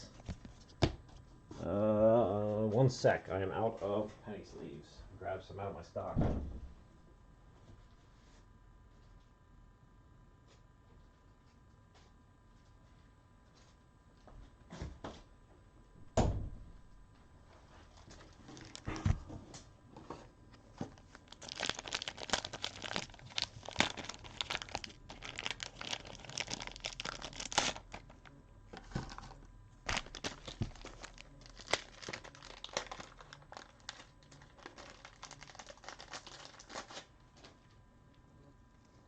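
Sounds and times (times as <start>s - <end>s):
plastic packaging crinkling and tearing: 17.9s - 19.3s, 20.5s - 37.7s.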